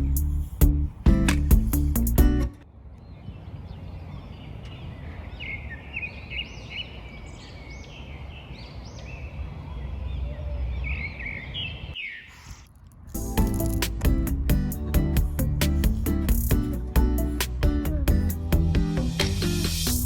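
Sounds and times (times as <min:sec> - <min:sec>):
birds chirping: 0:02.6 - 0:18.4.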